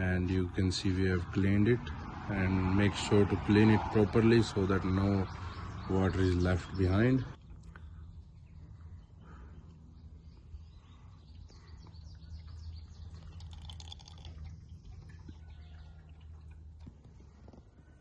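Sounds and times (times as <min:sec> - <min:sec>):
birds chirping: 0:00.0 - 0:18.0
oil pouring through a funnel: 0:00.0 - 0:18.0
steady low hum: 0:04.8 - 0:15.2.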